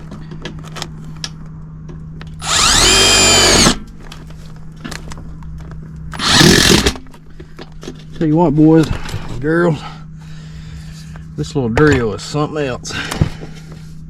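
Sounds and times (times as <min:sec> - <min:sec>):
power drill whine: 0:02.4 - 0:03.8, 0:06.1 - 0:07.0.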